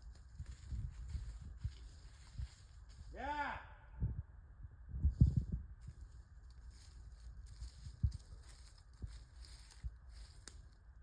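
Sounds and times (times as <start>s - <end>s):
faint footsteps: 0.0s - 3.1s, 5.1s - 10.8s
steady low rumble: 0.0s - 3.1s, 3.8s - 11.0s.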